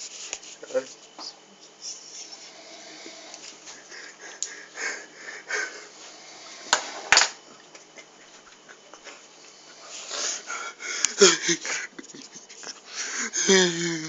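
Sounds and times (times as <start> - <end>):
person sniffling and breathing: 1.9 - 6.7, 9.1 - 14.0.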